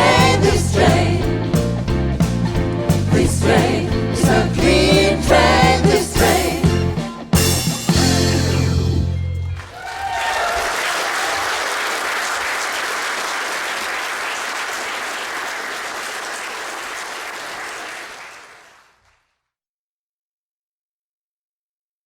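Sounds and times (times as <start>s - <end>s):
audience applauding: 9.5s - 19.2s
whoops: 9.6s - 11.8s.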